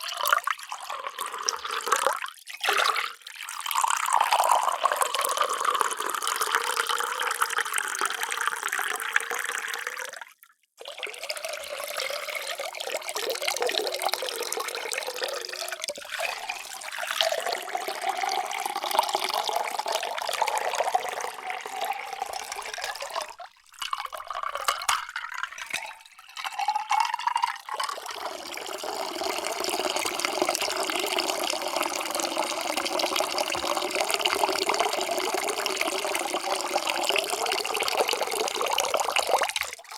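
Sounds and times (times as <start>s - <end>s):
water pouring into container: 0.0s - 39.9s.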